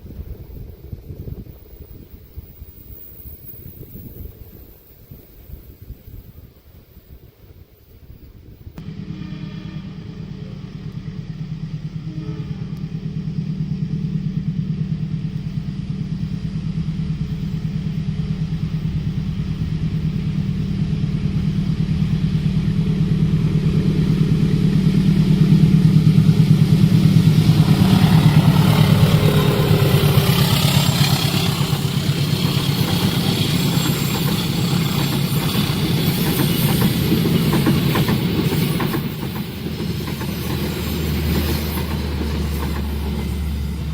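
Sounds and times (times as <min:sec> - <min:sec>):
diesel locomotive engine humming: 0:00.0 - 0:43.9
train wheels clattering on rails: 0:12.7 - 0:43.9.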